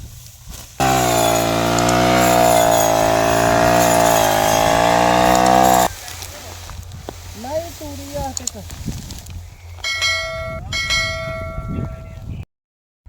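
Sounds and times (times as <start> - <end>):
motor running steady: 0.8 - 5.9.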